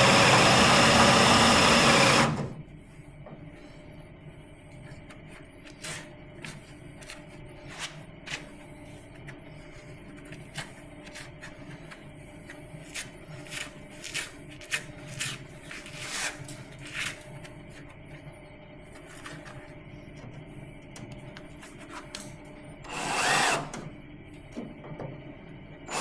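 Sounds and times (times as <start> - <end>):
drill bit clicking and scraping: 0.0 - 2.3
electric drill drilling metal: 0.0 - 2.5, 22.9 - 23.8.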